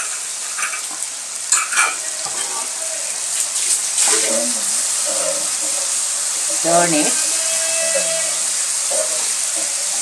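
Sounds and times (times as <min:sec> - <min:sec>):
utensil scraping pan: 0:00.0 - 0:03.0
chicken sizzling in hot oil: 0:00.0 - 0:10.0.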